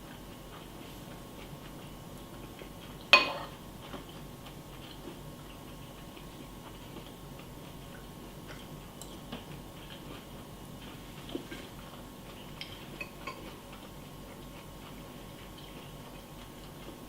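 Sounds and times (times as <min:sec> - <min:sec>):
spoon clinking against bowl: 0:03.2 - 0:03.5.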